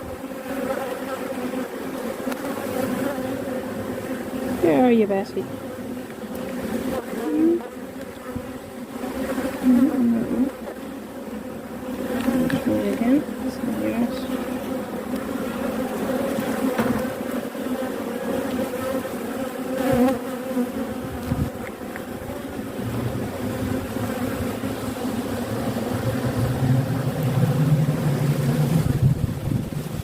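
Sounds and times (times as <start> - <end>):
bees buzzing: 0.0 - 30.0
low steady hum: 25.2 - 29.6.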